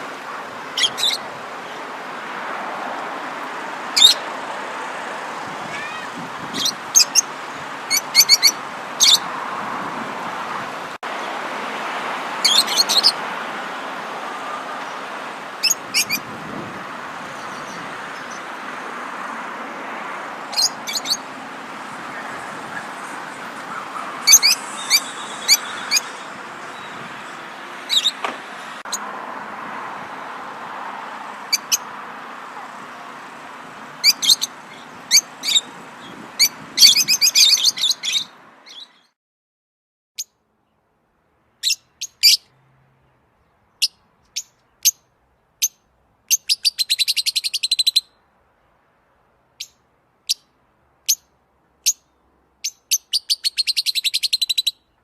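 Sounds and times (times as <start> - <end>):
birds chirping and trilling: 0.7 - 2.0, 3.8 - 4.4, 5.3 - 9.4, 12.4 - 19.2, 20.2 - 29.1, 31.3 - 39.2, 41.5 - 48.2, 51.1 - 55.0.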